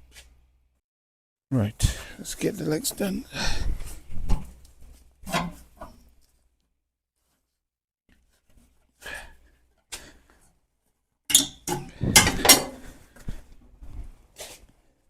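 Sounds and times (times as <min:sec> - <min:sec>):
metal crank handle clanking: 0:11.3 - 0:12.8.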